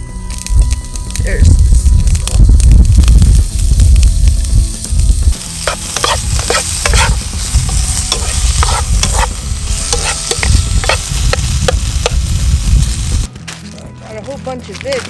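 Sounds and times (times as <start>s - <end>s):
pork sizzling in a frying pan: 0.0s - 13.3s
utensil scraping and tapping pan: 5.6s - 9.3s, 9.9s - 12.2s.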